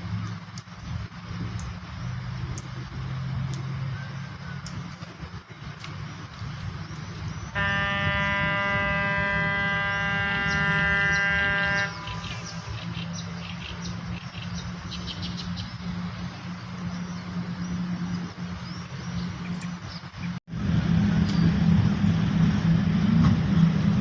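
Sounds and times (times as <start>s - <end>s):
low mechanical hum: 0.0s - 24.0s
small birds chirping: 0.1s - 8.0s, 8.7s - 20.4s.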